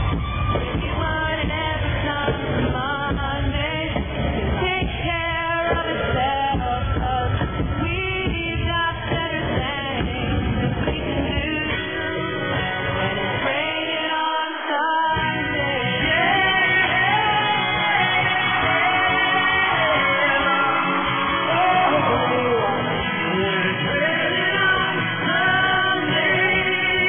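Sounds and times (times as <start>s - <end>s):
muffled live country-rock band: 0.0s - 27.0s
person singing: 0.0s - 27.0s.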